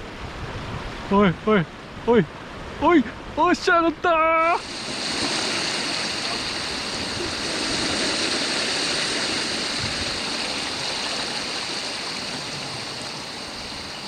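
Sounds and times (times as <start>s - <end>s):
waves washing over rocky shore: 4.2s - 14.0s.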